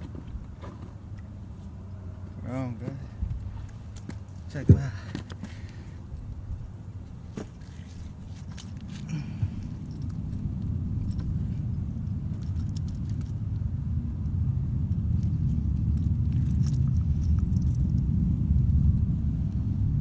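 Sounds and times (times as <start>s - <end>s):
faint clicks and rustles: 0.0s - 13.7s
wind buffeting microphone: 2.6s - 20.0s.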